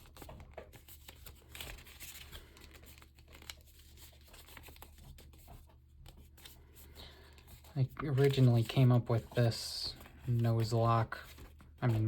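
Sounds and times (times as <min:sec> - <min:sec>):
paper crinkling and rustling: 0:00.0 - 0:12.0.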